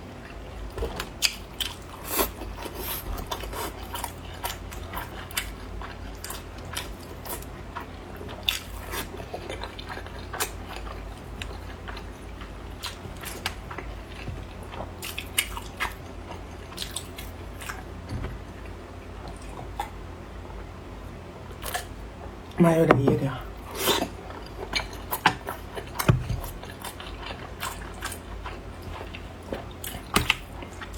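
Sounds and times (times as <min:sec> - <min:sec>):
person biting and chewing food: 0:23.6 - 0:30.9.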